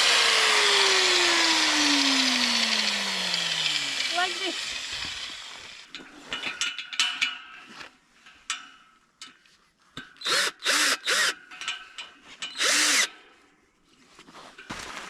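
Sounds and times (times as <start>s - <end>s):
cordless drill motor whirring: 0.0s - 5.9s, 10.2s - 11.4s, 12.5s - 13.1s.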